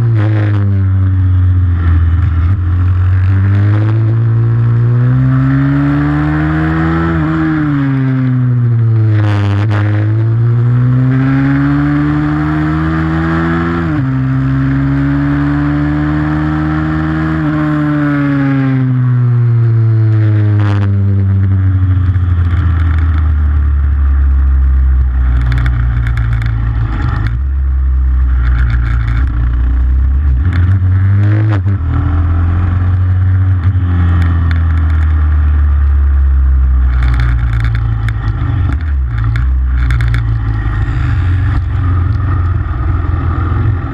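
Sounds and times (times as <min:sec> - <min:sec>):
pit bike engine revving: 0:28.2 - 0:43.9.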